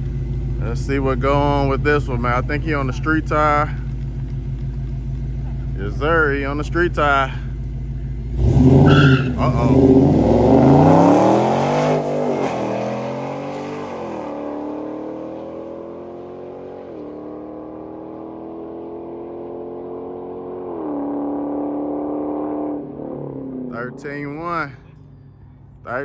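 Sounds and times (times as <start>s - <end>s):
drag car engine at full throttle: 0.0s - 26.0s
tires spinning: 8.3s - 18.8s.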